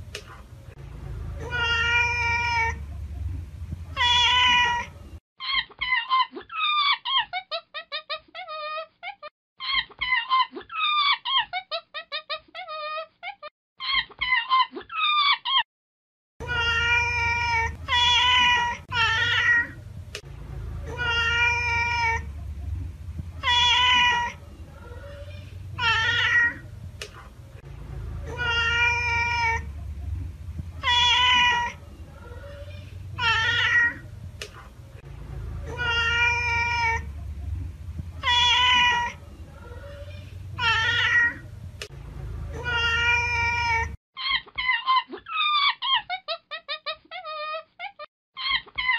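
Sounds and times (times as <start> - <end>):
low steady hum: 0.0 - 5.2, 16.4 - 44.0
cat meowing: 1.4 - 2.8, 3.9 - 4.9, 16.4 - 19.8, 20.9 - 22.3, 23.4 - 26.7, 28.3 - 29.7, 30.8 - 34.1, 35.7 - 37.1, 38.2 - 41.5, 42.6 - 44.0.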